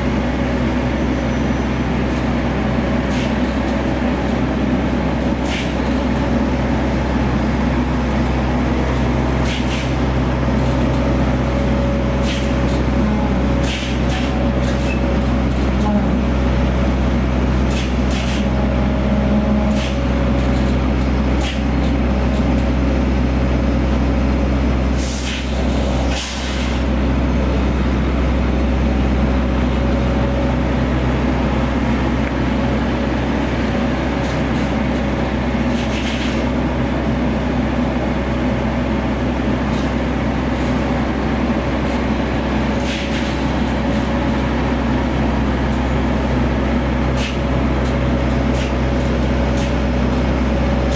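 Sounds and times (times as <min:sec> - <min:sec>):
truck diesel engine running: 0:00.0 - 0:50.9
air brake hisses: 0:25.0 - 0:26.8.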